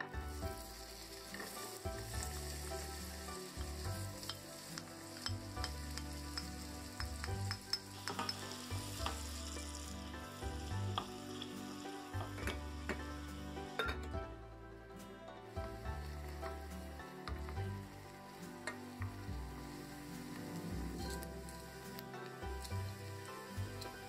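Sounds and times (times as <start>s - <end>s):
butter sizzling in a pan: 0.0s - 24.0s
wooden spoon scraping a pan: 15.0s - 24.0s.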